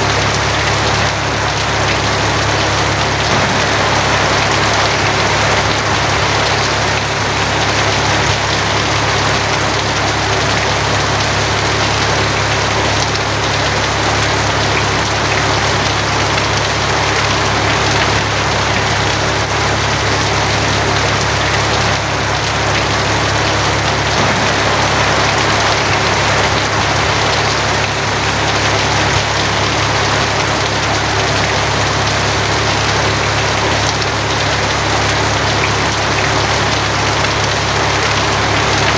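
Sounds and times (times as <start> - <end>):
rain on a tin roof: 0.0 - 38.9
constant low hum: 2.4 - 8.0, 21.9 - 29.0.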